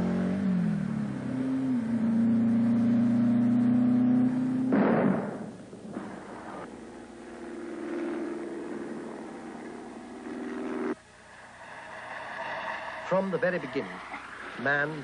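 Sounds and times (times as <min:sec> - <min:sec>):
car engine running hard: 0:00.0 - 0:04.8, 0:06.3 - 0:12.8
road and wind noise: 0:00.0 - 0:15.0.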